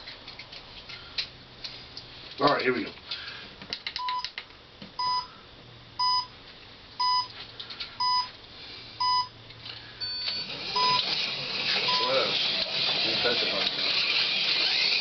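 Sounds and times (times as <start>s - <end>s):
short electronic beeps: 5.0s - 5.3s, 6.0s - 6.3s, 7.0s - 7.3s, 8.0s - 8.3s, 9.0s - 9.3s, 10.0s - 11.0s, 11.9s - 12.3s.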